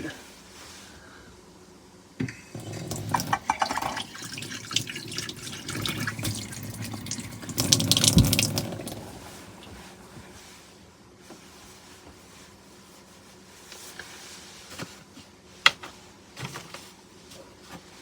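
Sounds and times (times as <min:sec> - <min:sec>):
tap water running into sink: 0:02.2 - 0:09.9.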